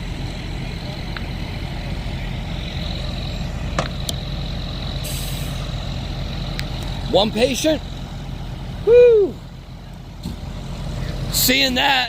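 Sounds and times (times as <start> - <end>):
vehicle engines idling: 0.0 - 12.0
short hiss: 5.0 - 5.6.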